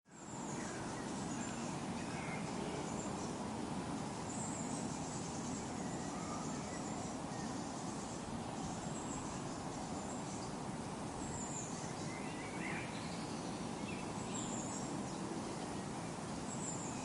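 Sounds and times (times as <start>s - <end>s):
faint bird chirps: 4.2s - 10.6s.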